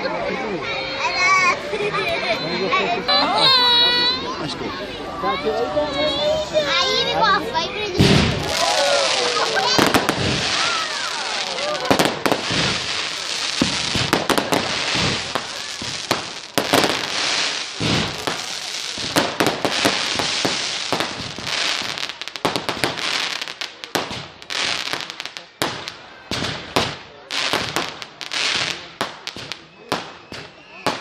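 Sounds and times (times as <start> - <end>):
fireworks hissing rush: 6.2 - 31.0
fireworks crackling and banging: 6.6 - 31.0.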